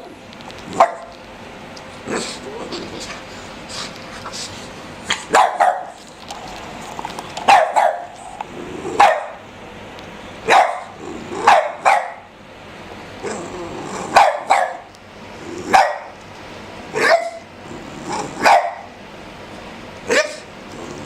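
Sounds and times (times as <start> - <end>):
small dog play barks: 5.1 - 6.0, 7.4 - 8.2, 14.0 - 14.9.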